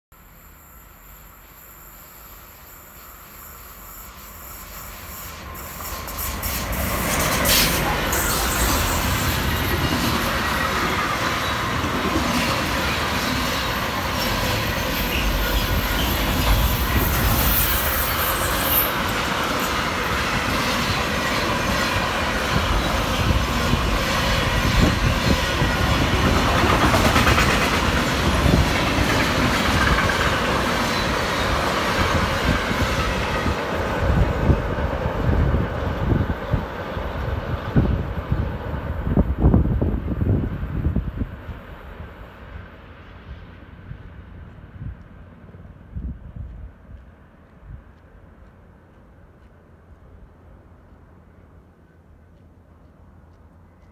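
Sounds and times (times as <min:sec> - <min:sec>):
freight train rumbling past: 0:00.2 - 0:53.9
high wheel squeal: 0:00.6 - 0:19.8.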